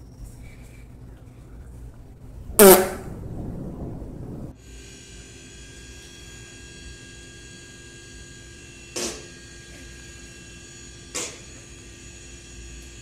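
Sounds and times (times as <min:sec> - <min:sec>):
electrical hum: 0:00.0 - 0:04.6
faint whining tones: 0:00.0 - 0:04.6
short noisy bursts: 0:02.5 - 0:03.5.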